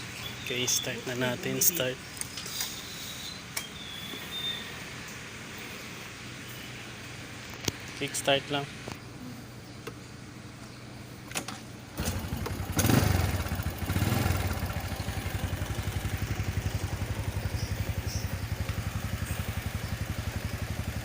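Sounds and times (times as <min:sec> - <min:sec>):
motorcycle engine kick-started: 0:11.3 - 0:21.0
motorcycle engine revving and idling: 0:12.0 - 0:21.0.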